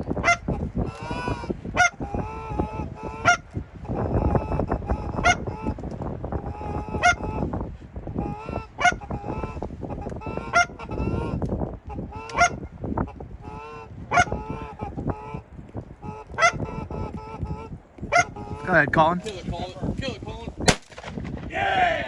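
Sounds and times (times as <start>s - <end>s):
wind rumble: 0.0s - 22.0s
soft low goose calls: 0.2s - 5.8s, 6.4s - 7.5s, 8.2s - 18.7s.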